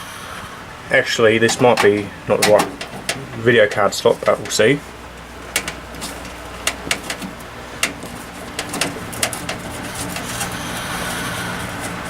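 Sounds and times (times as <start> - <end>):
steady low hum: 0.0 - 12.0
clicks and knocks in computer case: 1.5 - 3.4, 4.2 - 10.7.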